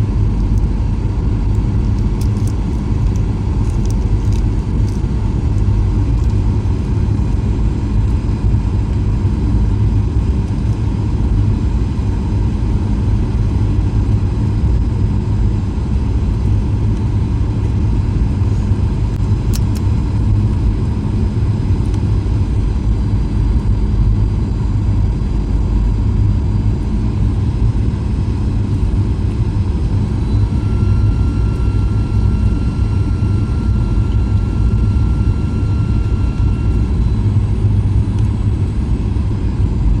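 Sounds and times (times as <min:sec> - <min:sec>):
faint steady whine: 0:00.0 - 0:40.0
jet engine cabin rumble: 0:00.0 - 0:40.0.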